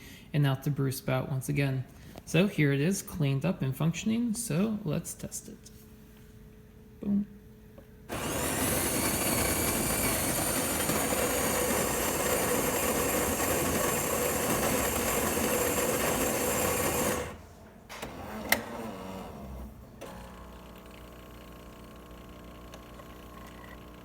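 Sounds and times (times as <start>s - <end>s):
coffee grinder grinding beans: 8.1s - 17.4s, 20.2s - 24.0s.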